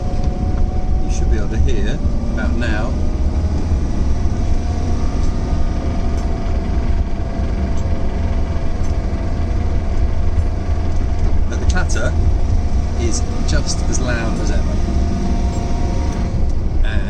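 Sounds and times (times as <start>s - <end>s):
car engine clattering: 0.0s - 17.0s.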